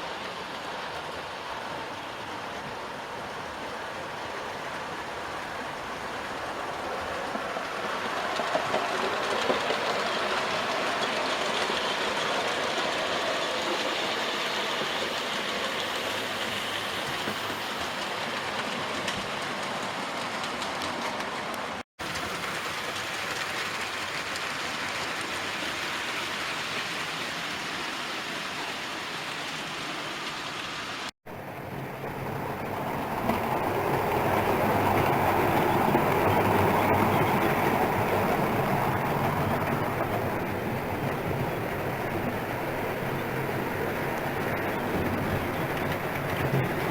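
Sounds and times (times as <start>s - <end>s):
louder train approaching: 0.0s - 46.9s
model train rumbling on track: 0.0s - 46.9s.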